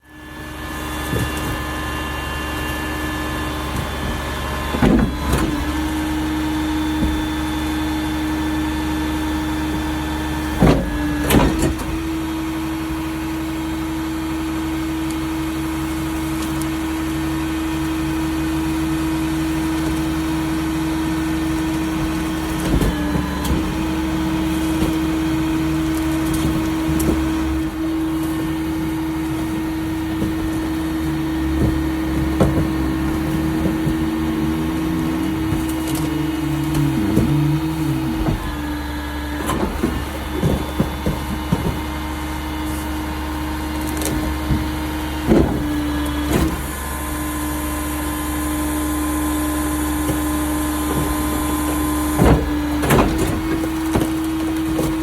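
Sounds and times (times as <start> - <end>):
garbage truck diesel engine running: 0.0 - 55.0
loud metal clanks: 21.8 - 42.9.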